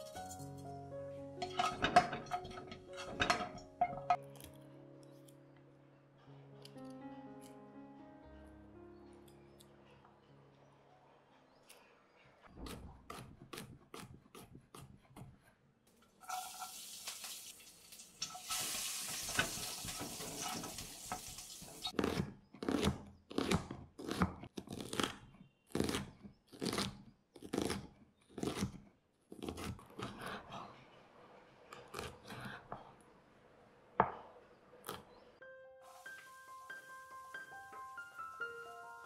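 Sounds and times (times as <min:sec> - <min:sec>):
garlic sizzling in hot oil: 0:16.2 - 0:22.0, 0:35.9 - 0:39.0
spatula stirring in pan: 0:18.5 - 0:21.8
knife cutting on wooden board: 0:22.0 - 0:30.4.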